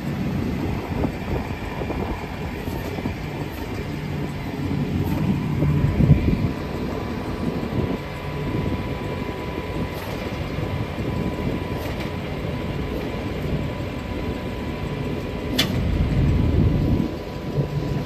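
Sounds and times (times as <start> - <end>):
vehicle engines idling: 0.0 - 18.0
sharp click: 15.5 - 15.9.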